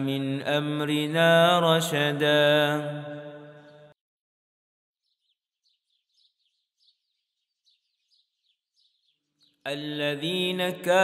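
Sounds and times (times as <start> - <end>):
faint bird chirping: 5.0 - 10.3.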